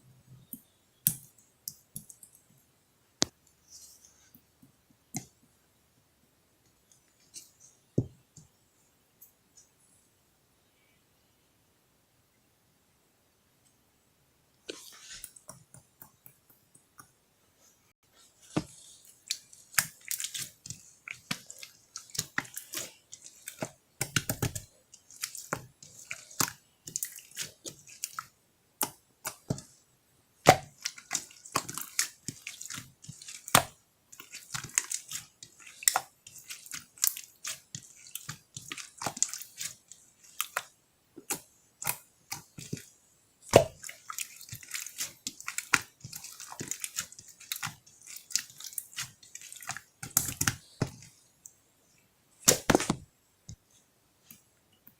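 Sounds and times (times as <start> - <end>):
slime squelching by hand: 18.1 - 29.8, 30.4 - 51.5, 52.4 - 53.6
wet clicks and sticky pops: 30.5 - 51.1.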